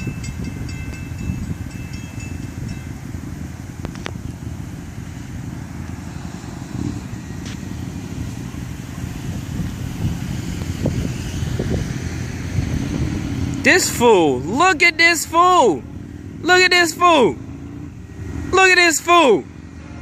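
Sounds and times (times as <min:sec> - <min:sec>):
freight train rumbling past: 0:00.0 - 0:03.8.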